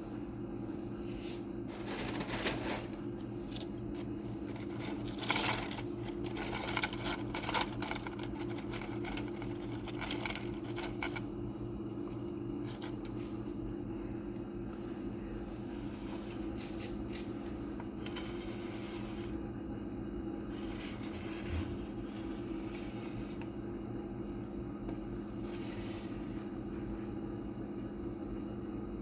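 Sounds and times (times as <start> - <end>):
low appliance hum: 0.0 - 29.0
rustling of food: 1.2 - 11.4, 12.1 - 13.5.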